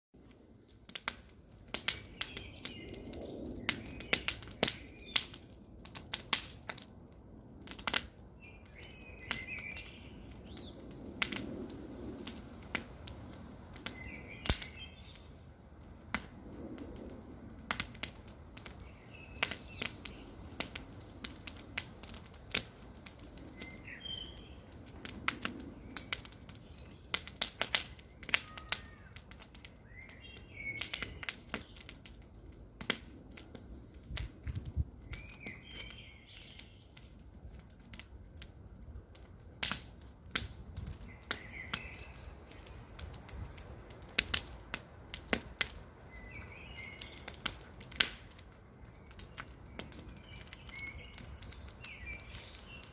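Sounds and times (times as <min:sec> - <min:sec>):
campfire crackling: 0:00.2 - 0:52.9.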